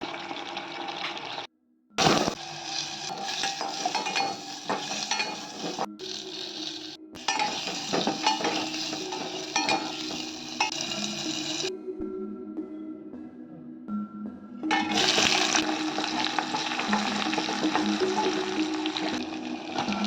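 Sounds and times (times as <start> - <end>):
food sizzling in a pan: 0.0 - 11.7, 14.7 - 20.0
metal spoon scraping a pan: 2.0 - 11.7, 14.7 - 19.2.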